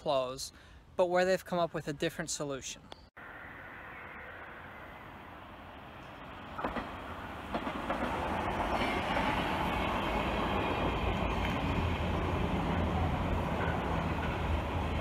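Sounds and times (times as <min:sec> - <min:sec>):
electric train passing: 0:03.2 - 0:15.0.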